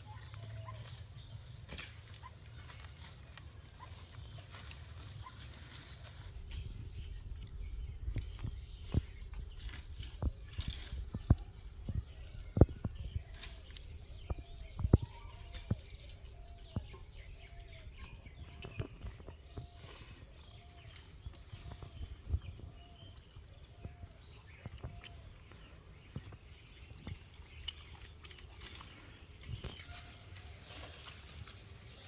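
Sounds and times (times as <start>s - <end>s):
bird calling: 3.8s - 25.7s.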